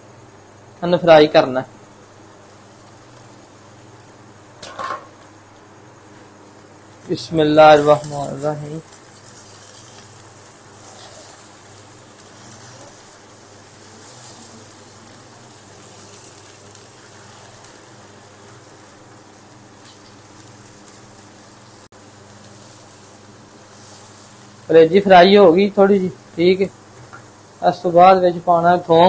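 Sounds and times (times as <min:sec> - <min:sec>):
food sizzling in oil: 0:00.0 - 0:29.0
spatula stirring in wok: 0:07.9 - 0:24.7.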